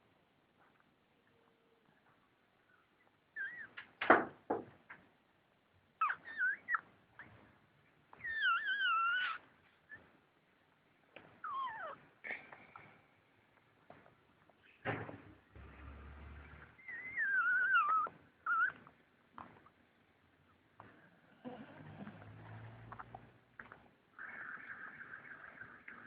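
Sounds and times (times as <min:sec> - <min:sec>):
puppies squealing and whining: 0:03.4 - 0:03.8, 0:06.0 - 0:07.4, 0:08.1 - 0:10.1, 0:11.4 - 0:12.1, 0:15.8 - 0:18.9, 0:24.2 - 0:26.0.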